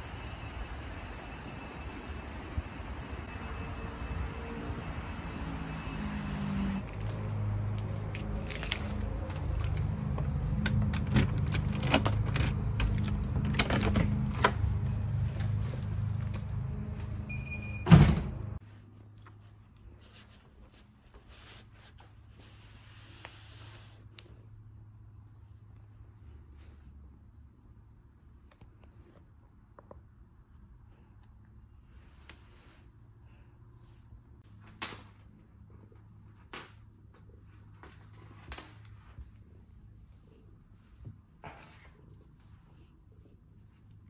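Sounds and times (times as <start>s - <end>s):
low vehicle hum: 0.0s - 18.6s
sharp clicks and jangling: 10.6s - 14.5s.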